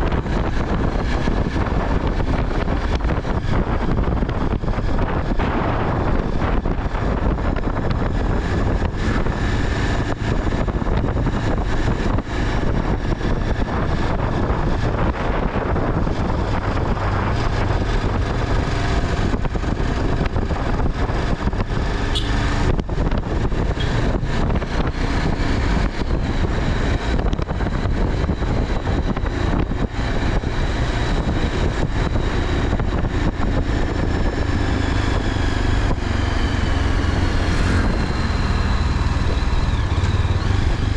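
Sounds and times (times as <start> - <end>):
vehicle rumble: 0.0 - 40.9
wind noise: 0.0 - 40.9.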